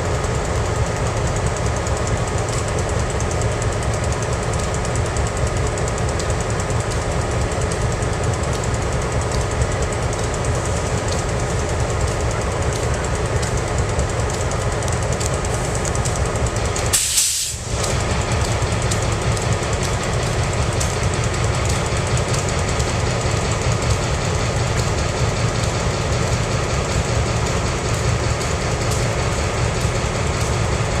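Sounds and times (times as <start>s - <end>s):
diesel locomotive engine throb: 0.0s - 31.0s
brief hiss: 16.9s - 17.7s.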